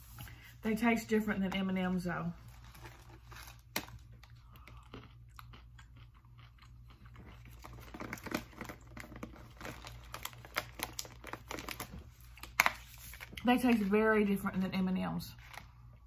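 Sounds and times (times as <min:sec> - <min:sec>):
candy crunching while chewing: 0:02.5 - 0:13.7.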